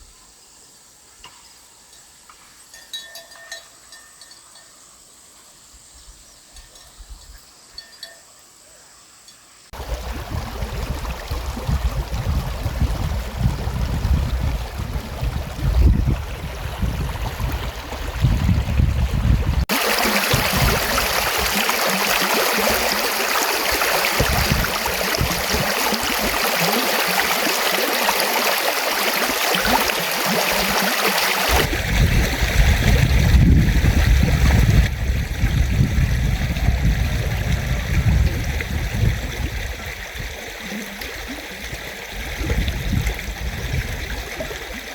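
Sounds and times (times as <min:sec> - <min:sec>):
rush of running water: 0:09.7 - 0:44.9
deep water rumble: 0:09.8 - 0:28.0, 0:29.3 - 0:44.9.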